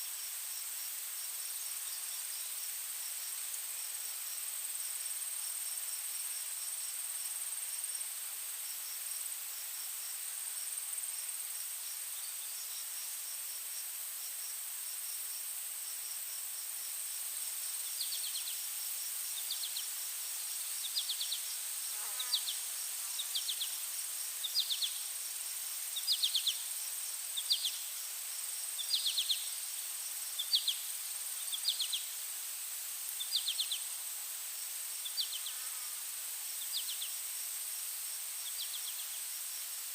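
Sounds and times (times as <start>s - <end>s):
fast pulsed insect chirping: 8.6s - 39.9s
loud short insect chirps: 20.6s - 25.1s, 25.9s - 26.7s, 27.3s - 28.1s, 30.3s - 32.1s, 33.2s - 33.9s, 35.0s - 37.2s.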